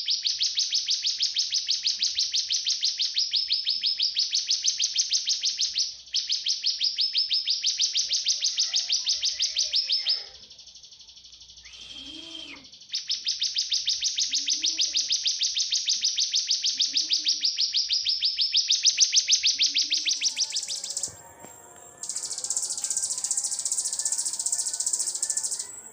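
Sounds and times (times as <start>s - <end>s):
songbird trill of high chip notes: 19.4s - 25.9s.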